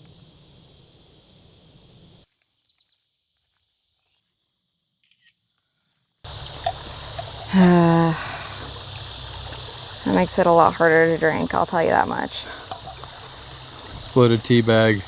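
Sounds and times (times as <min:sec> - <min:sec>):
loud insect chorus: 0:00.0 - 0:02.9, 0:06.2 - 0:15.0
high-pitched insect trill: 0:06.2 - 0:15.0
rushing water: 0:06.3 - 0:15.0.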